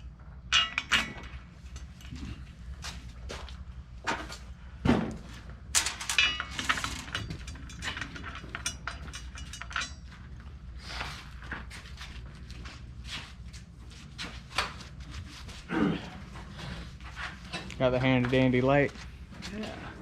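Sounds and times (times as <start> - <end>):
ringing metallic clatter: 0.5 - 2.0, 5.8 - 10.4.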